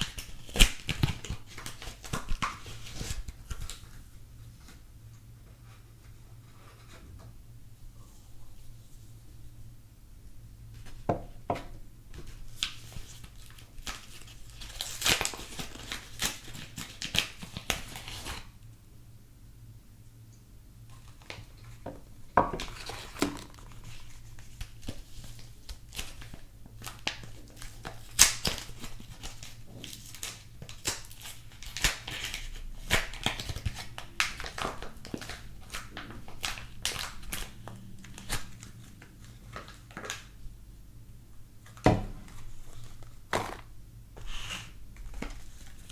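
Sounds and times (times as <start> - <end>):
packaging crinkling and tearing: 0.0 - 4.0, 12.3 - 18.5, 22.6 - 40.4, 41.6 - 45.9.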